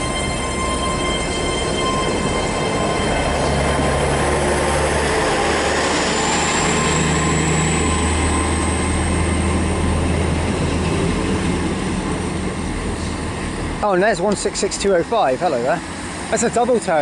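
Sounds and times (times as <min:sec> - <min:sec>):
faint high whine: 0:00.0 - 0:11.0
train diesel engines humming: 0:00.0 - 0:17.0.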